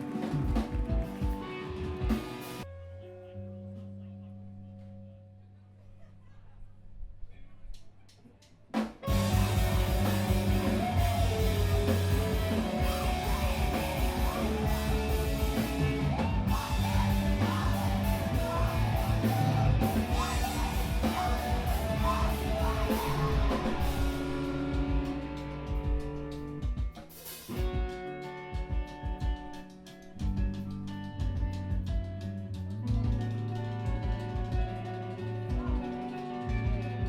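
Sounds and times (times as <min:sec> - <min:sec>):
drum kit: 0:00.0 - 0:02.7, 0:08.7 - 0:37.0
distorted electric guitars: 0:00.0 - 0:05.1, 0:08.8 - 0:37.0
bass guitar: 0:00.0 - 0:06.0, 0:08.8 - 0:37.0
person yelling vocals: 0:10.6 - 0:24.5.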